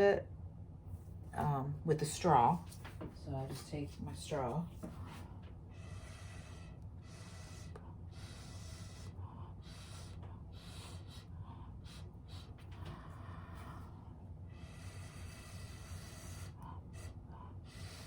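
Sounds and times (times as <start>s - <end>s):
breath puffs through a straw: 5.8s - 18.0s.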